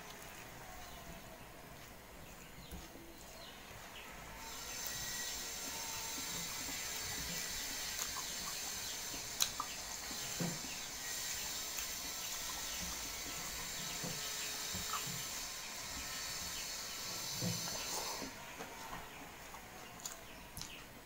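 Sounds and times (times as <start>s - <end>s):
person chewing: 7.7s - 8.2s, 9.0s - 10.2s, 20.0s - 20.8s.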